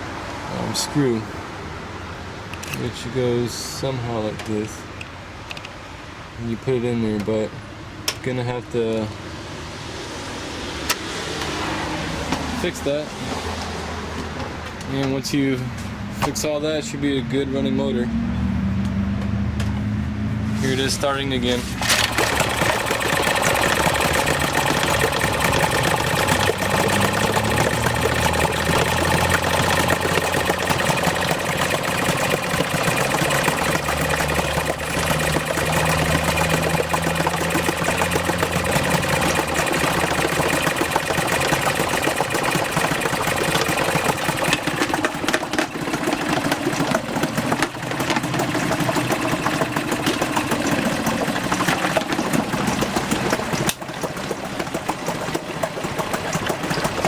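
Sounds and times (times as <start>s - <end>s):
man talking: 0.5s - 1.4s, 2.8s - 4.9s, 6.4s - 7.6s, 8.2s - 9.2s, 12.6s - 13.1s, 14.9s - 18.2s, 20.6s - 21.8s
outboard motor running: 20.6s - 57.0s.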